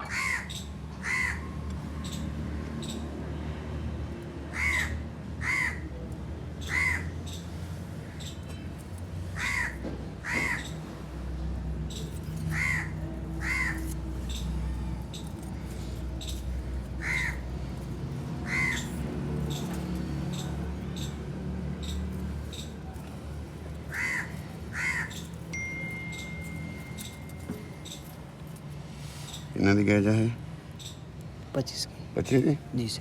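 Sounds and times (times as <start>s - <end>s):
bird calling: 9.4s - 10.9s, 11.9s - 14.6s, 17.0s - 19.8s, 23.9s - 28.2s.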